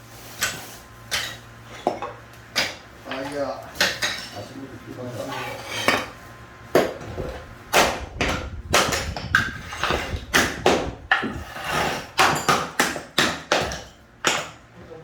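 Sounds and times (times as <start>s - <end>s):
hard objects knocking and clattering: 6.8s - 14.6s.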